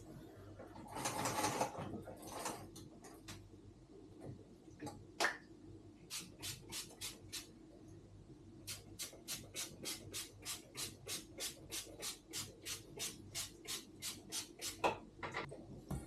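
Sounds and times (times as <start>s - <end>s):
spray bottle hissing sprays: 6.1s - 7.5s, 8.7s - 14.8s.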